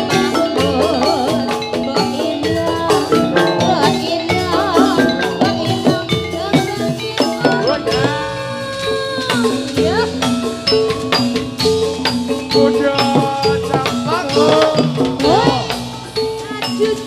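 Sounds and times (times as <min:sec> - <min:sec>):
drums playing fast rhythm: 0:00.0 - 0:17.0
metallophones playing: 0:00.0 - 0:17.0.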